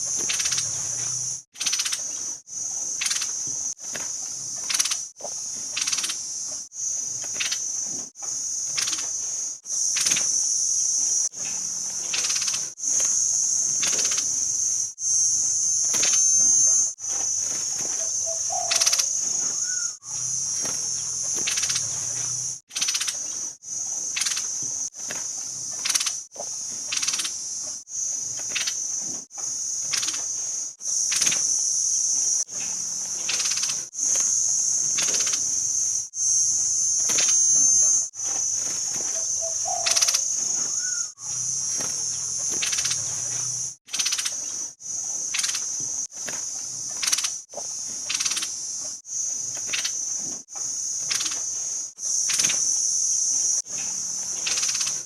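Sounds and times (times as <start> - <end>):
insect chirring: 0.0 - 55.0
faint bird notes: 15.4 - 23.4, 36.6 - 41.5.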